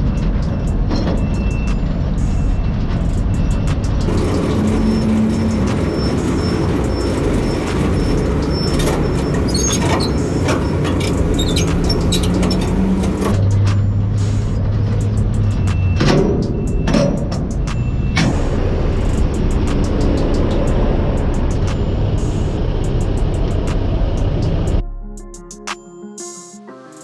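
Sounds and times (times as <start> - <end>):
diesel truck engine rumbling: 0.0 - 24.8
sharp rattling clicks: 3.1 - 13.5.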